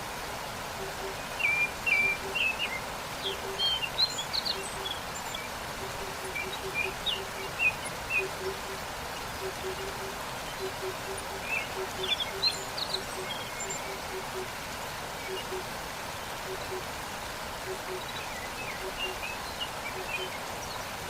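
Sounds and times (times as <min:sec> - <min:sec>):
waterfall rushing: 0:00.0 - 0:21.0
small birds chirping: 0:01.2 - 0:14.5.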